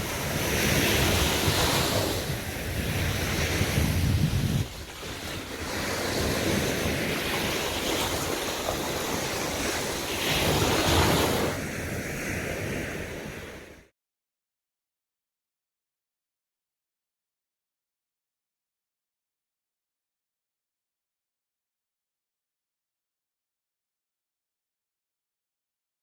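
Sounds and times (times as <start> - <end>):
sea waves washing onto beach: 0.0 - 13.9
wind rumbling on microphone: 0.0 - 13.9.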